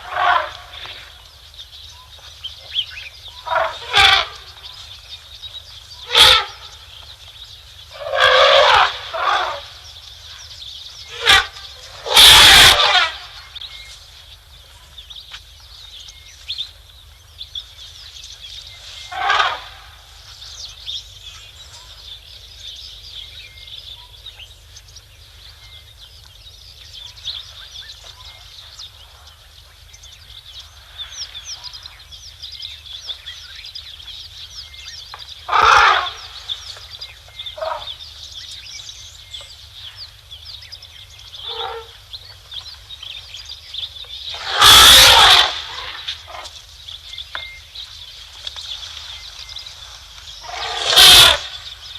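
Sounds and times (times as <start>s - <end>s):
small birds chirping: 0.0s - 51.9s
loud short bird calls: 11.1s - 13.6s, 44.2s - 46.6s, 48.8s - 51.9s.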